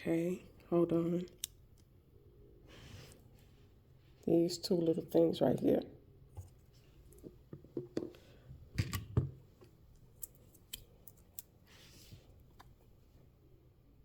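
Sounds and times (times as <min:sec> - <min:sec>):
soft rustle: 0:11.6 - 0:13.4.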